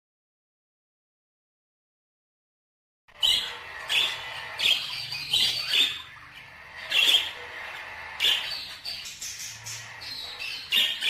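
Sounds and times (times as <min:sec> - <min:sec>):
birds chirping and squawking: 0:03.1 - 0:11.0.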